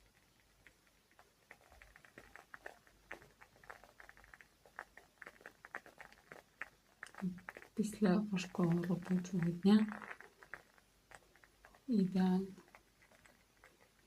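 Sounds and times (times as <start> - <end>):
candle crackling: 0.0 - 14.0.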